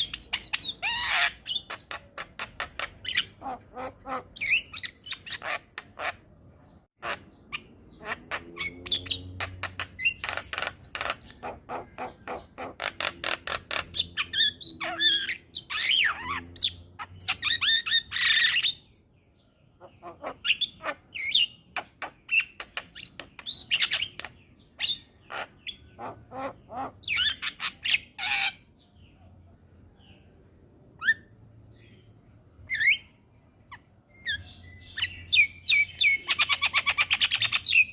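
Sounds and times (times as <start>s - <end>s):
bird calling with whistled phrases: 32.6s - 37.9s.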